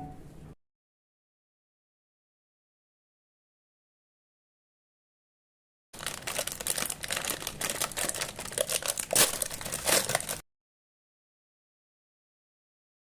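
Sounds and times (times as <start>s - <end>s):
crinkling and rustling: 6.0s - 10.4s.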